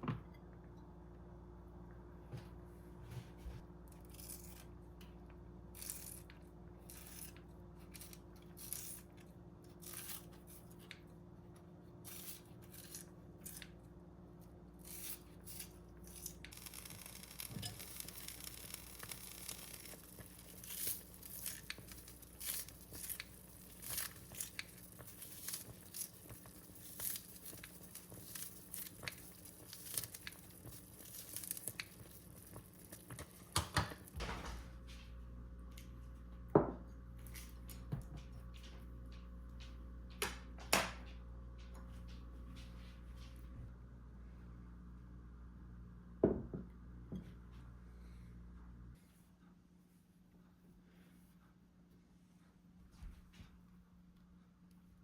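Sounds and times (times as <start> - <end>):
crinkling and tearing: 14.9 - 33.5.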